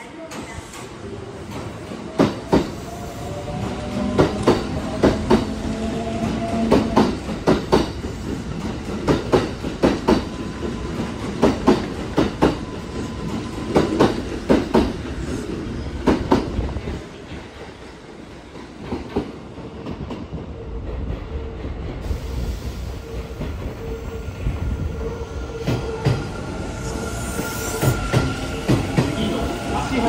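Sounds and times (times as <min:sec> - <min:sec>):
train rumble: 0:00.3 - 0:30.0.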